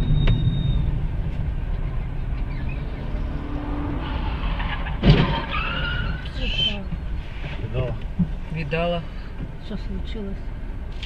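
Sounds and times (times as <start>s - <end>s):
car rumble heard from inside: 0.0s - 11.0s
loud thump: 4.9s - 5.6s.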